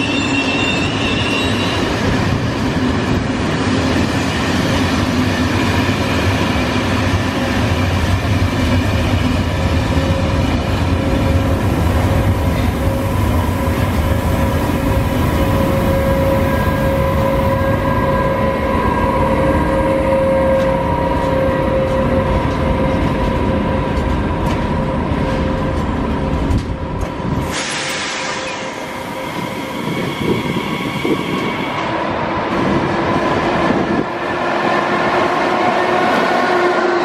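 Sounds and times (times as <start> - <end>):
train wheel and rail rumble: 0.0 - 37.0
distant train hiss: 27.4 - 30.2.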